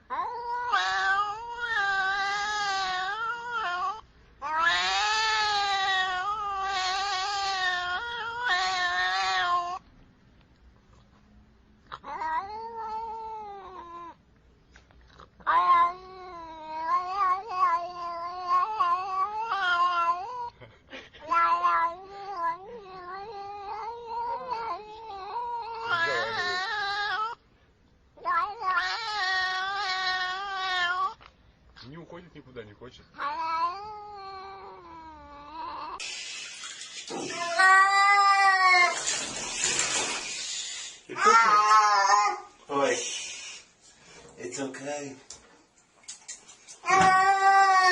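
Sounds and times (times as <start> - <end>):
cat yowling: 0.0 - 9.8, 11.9 - 14.2, 15.4 - 20.6, 21.2 - 27.4, 28.2 - 31.2, 33.2 - 36.0, 36.8 - 40.2, 41.1 - 42.6, 46.8 - 47.9.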